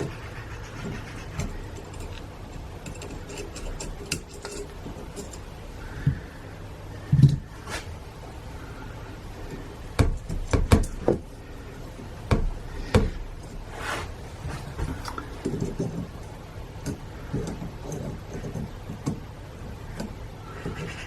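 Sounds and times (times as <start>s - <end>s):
metal parts clinking: 1.4s - 5.6s
soft handling noises: 13.4s - 19.1s
short rushing scrape: 13.7s - 14.9s.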